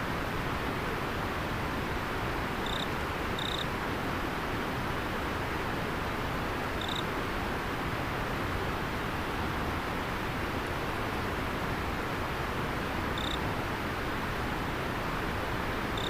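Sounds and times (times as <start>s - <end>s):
insect chirping: 2.6s - 3.7s, 6.8s - 7.0s, 13.2s - 13.4s.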